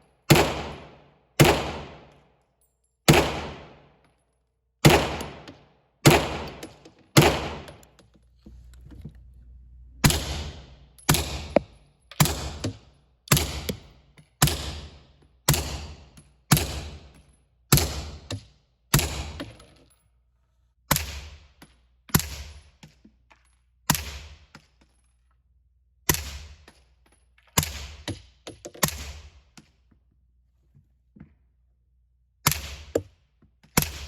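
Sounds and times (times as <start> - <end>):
gunshots with echo: 0.3 - 2.1, 3.1 - 3.8, 4.8 - 7.8.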